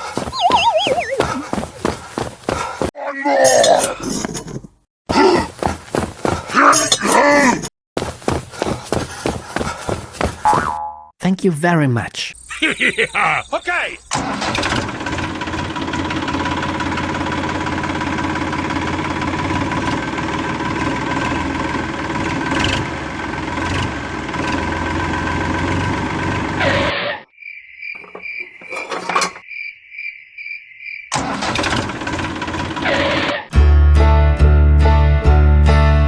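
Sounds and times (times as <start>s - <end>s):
high electronic beeping: 0.4s - 1.4s.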